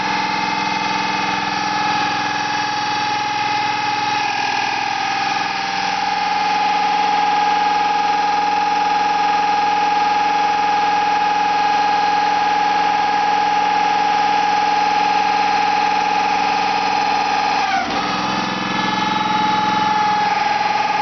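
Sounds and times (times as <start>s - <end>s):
hydraulic system humming: 0.0s - 7.5s, 16.4s - 21.0s.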